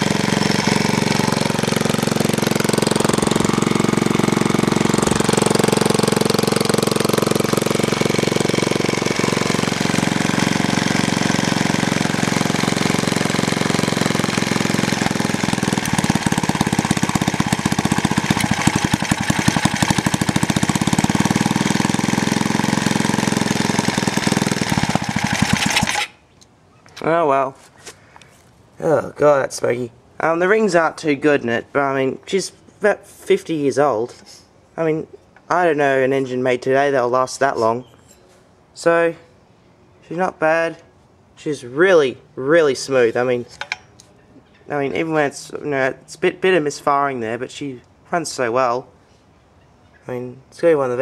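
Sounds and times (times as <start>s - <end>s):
single-cylinder stationary engine running: 0.0s - 26.1s.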